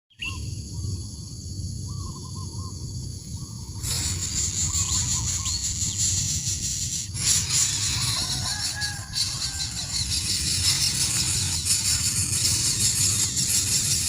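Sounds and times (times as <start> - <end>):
steady low rumble: 0.3 - 14.0
hiss: 0.6 - 14.0
bird hooting: 7.2 - 14.0.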